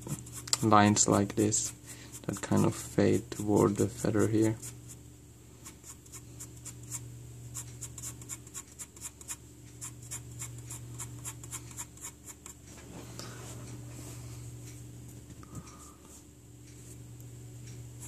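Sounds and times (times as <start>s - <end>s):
pencil scratching on paper: 1.5s - 5.0s, 5.6s - 12.6s.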